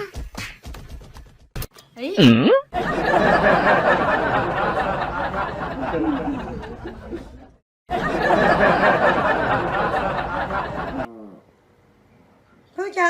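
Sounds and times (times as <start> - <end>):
people laughing and chattering: 2.8 - 11.1.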